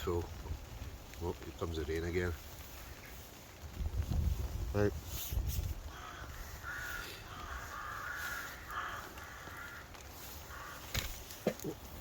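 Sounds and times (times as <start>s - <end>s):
crows cawing: 5.8s - 11.9s.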